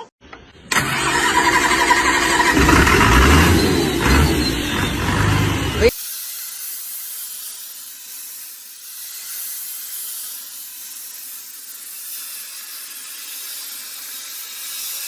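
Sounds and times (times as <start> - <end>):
steady hiss: 5.8 - 15.0.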